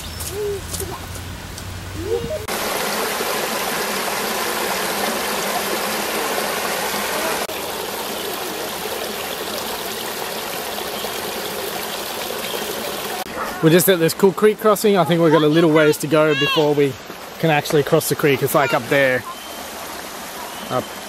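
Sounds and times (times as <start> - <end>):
creek water running: 0.0 - 21.0.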